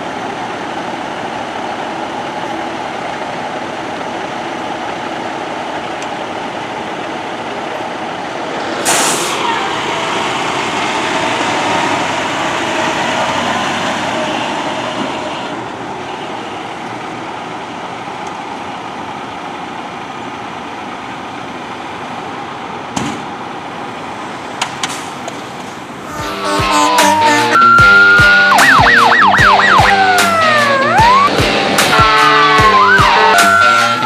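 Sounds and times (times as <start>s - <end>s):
diesel engine idling: 0.0s - 34.0s
road traffic noise: 0.0s - 34.0s
wavering tone: 26.0s - 34.0s.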